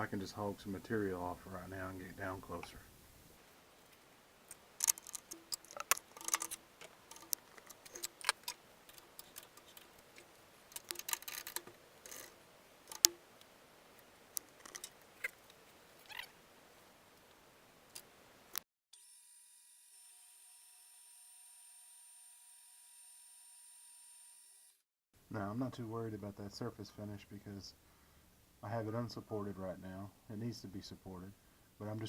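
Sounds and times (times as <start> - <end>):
faint steady hum: 0.0 - 19.2, 25.2 - 32.0.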